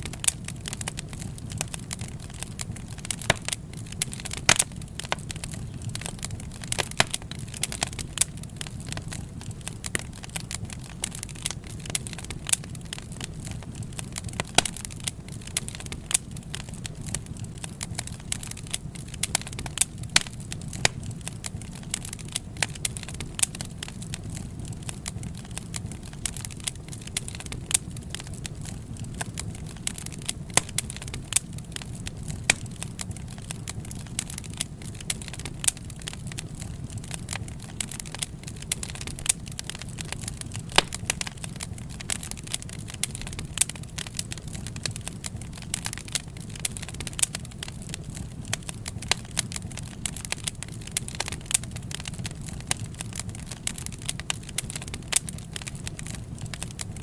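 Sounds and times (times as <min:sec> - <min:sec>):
low rumble of flames: 0:00.0 - 0:57.0
wood fire crackling and popping: 0:00.0 - 0:57.0.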